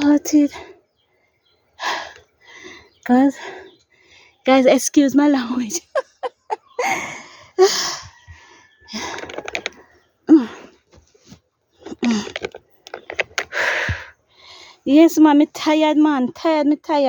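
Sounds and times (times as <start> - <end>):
woman breathing hard: 6.8 - 9.7, 13.4 - 14.8.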